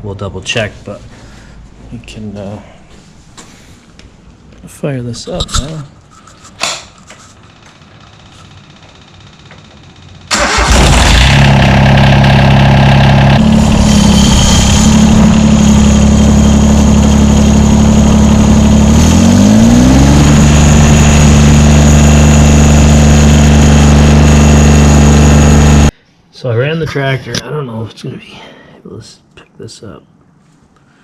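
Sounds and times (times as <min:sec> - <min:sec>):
diesel engine cranking: 0:10.3 - 0:25.9
diesel engine running: 0:10.3 - 0:25.9.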